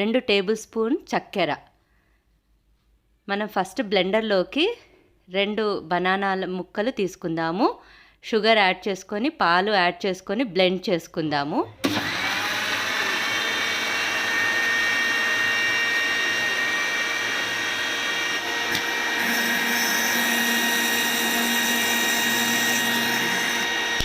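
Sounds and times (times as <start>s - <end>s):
kitchen blender motor whine: 11.7s - 24.0s.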